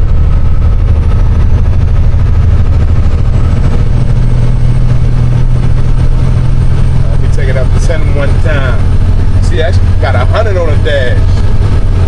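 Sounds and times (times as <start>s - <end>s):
road noise: 0.0s - 12.0s
truck diesel engine droning: 0.0s - 12.0s.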